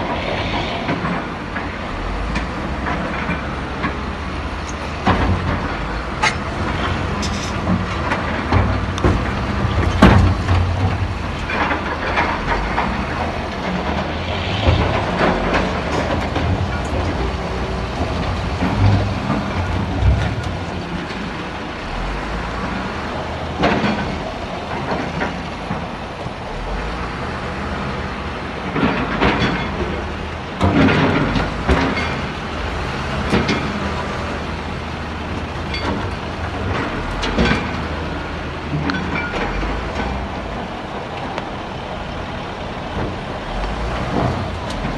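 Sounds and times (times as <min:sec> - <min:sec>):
diesel machinery droning: 0:00.0 - 0:44.9
metal and rock clanking: 0:00.9 - 0:27.2, 0:28.6 - 0:44.9.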